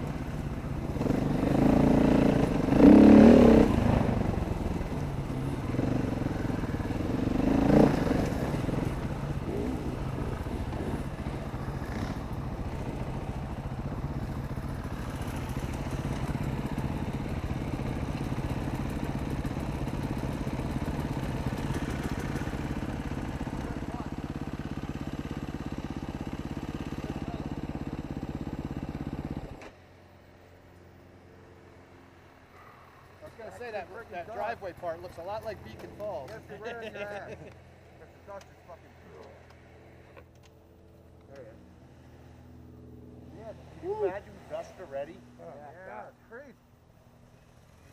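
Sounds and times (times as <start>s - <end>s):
dirt bike engine running: 0.0s - 31.1s.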